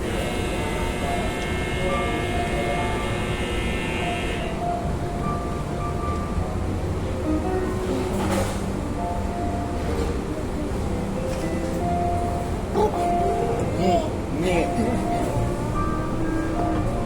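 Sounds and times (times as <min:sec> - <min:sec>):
high many-toned whine: 0:00.0 - 0:06.4
background music: 0:00.0 - 0:17.0.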